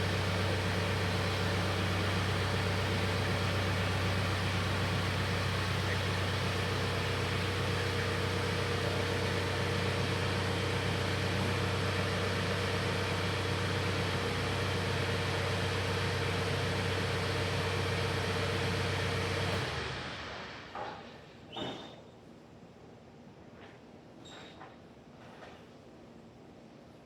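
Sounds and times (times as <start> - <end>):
tractor engine running: 0.0 - 20.2.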